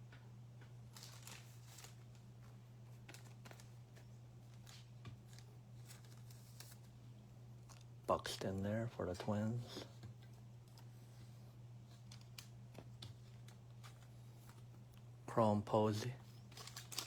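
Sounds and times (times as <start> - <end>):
trading cards rustling and clicking: 0.9 - 6.9, 11.9 - 14.7, 16.4 - 17.0.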